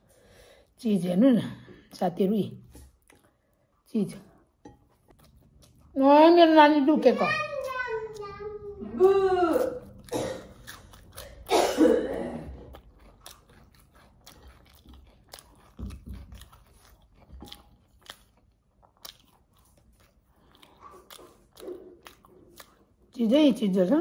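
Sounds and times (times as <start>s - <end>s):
person chewing crunchy food: 2.7s - 6.0s, 9.5s - 23.2s.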